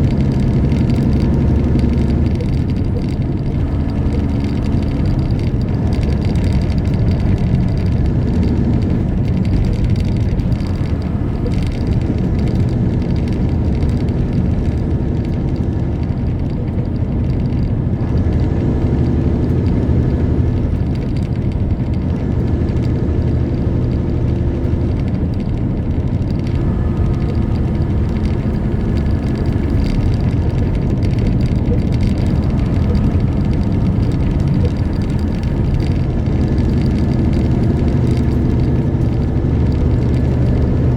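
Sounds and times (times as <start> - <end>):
diesel truck engine: 0.0 - 40.9
tyre noise: 0.0 - 40.9.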